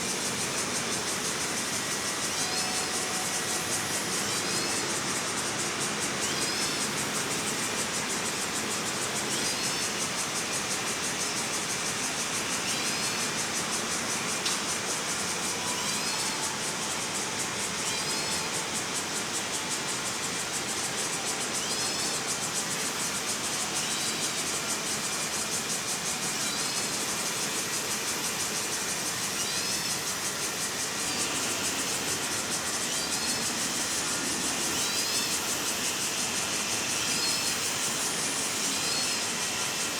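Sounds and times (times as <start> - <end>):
high hiss of park ambience: 0.0 - 39.9.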